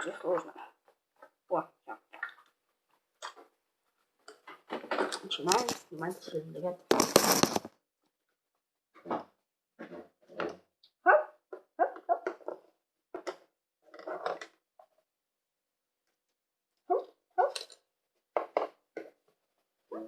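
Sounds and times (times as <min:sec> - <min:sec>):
dog barking and yipping: 0:11.0 - 0:12.3, 0:16.9 - 0:17.6.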